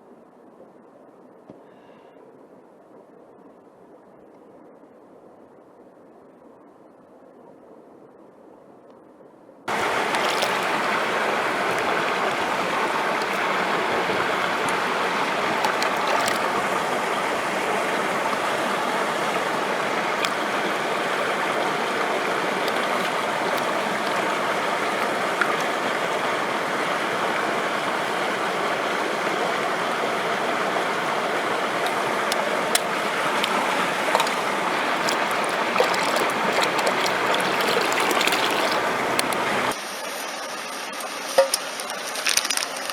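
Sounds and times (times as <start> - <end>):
stream rushing over rocks: 9.7 - 39.8.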